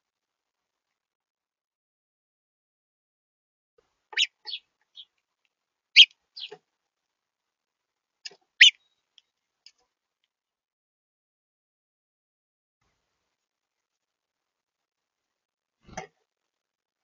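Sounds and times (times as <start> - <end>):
small bird chirping: 4.1 - 5.1, 6.0 - 6.6, 8.6 - 9.0.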